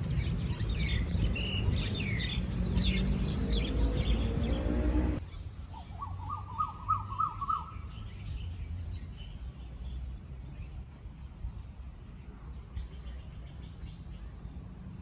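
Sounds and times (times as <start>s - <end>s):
bird chirping: 0.1s - 10.8s
faint higher bird calls: 5.2s - 7.9s.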